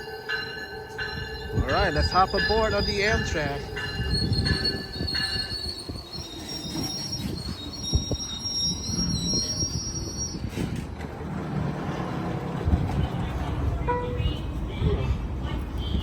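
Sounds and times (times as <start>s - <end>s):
train wheels squealing: 0.0s - 10.9s.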